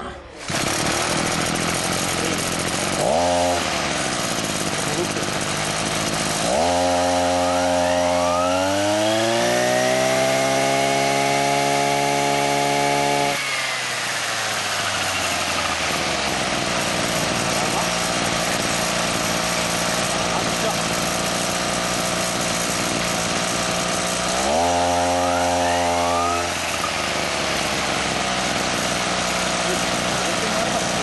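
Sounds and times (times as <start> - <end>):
brush cutter engine revving: 0.2 - 31.0.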